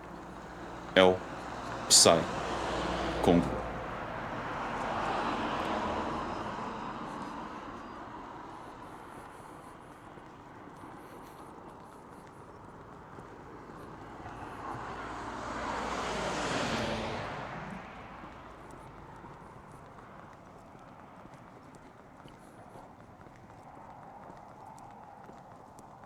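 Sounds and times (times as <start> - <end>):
vehicle passing by: 0.0 - 9.1, 13.7 - 19.8.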